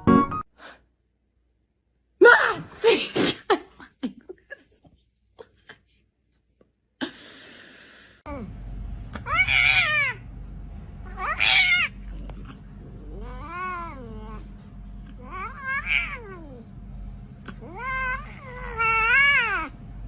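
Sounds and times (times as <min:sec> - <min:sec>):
steady low hum: 0:08.2 - 0:20.0
cat meowing: 0:09.2 - 0:10.2, 0:11.1 - 0:12.0, 0:15.2 - 0:16.6.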